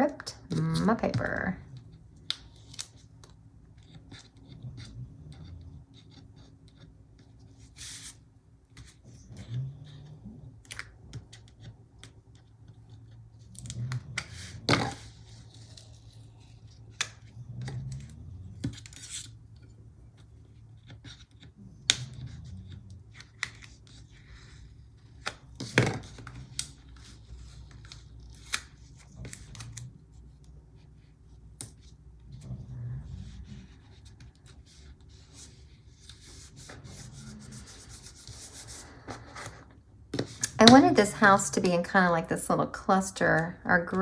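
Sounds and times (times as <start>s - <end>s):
paper and sticker sheets rustling: 0.3s - 1.6s, 33.0s - 44.0s.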